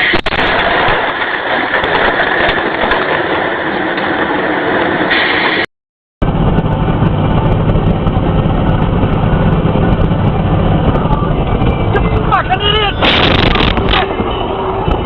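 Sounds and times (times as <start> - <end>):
road noise: 0.0 - 15.0
vehicle engine rumble: 6.2 - 15.0.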